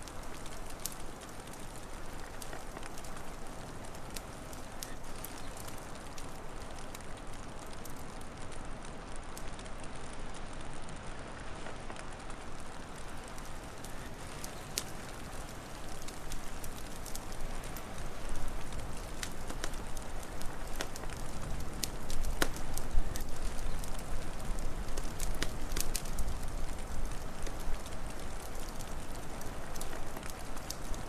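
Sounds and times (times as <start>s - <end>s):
wood fire crackling and popping: 0.0s - 31.0s.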